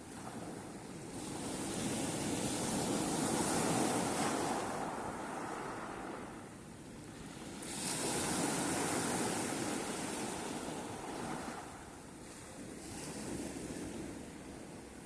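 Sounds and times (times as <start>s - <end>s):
sea waves breaking on shore: 0.0s - 15.0s.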